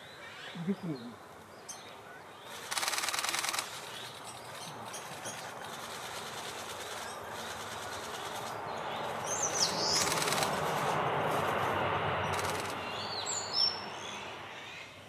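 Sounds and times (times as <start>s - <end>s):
bird raspy rattling call: 1.7s - 10.9s.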